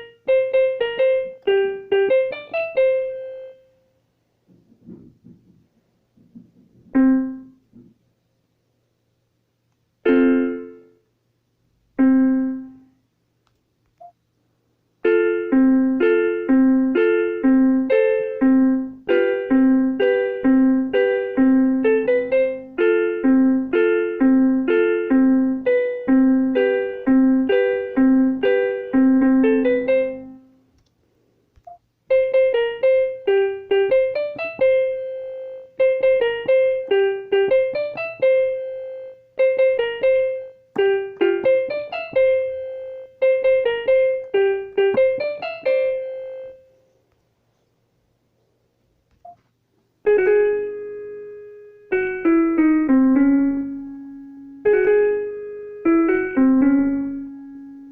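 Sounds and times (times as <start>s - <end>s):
electronic keyboard piano notes: 0.0s - 3.8s, 6.8s - 7.9s, 10.0s - 11.0s, 11.9s - 12.9s, 15.0s - 30.6s, 32.1s - 46.8s, 50.0s - 57.9s.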